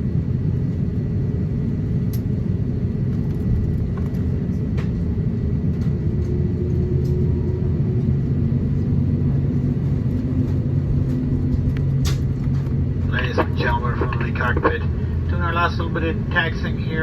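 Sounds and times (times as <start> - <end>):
airplane cabin rumble while taxiing: 0.0 - 17.0.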